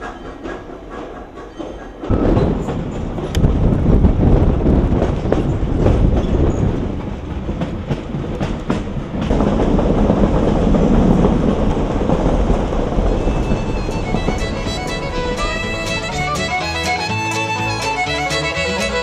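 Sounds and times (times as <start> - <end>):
train wheels rumbling on rail: 0.0 - 19.0
clicks over rail joints: 4.9 - 19.0.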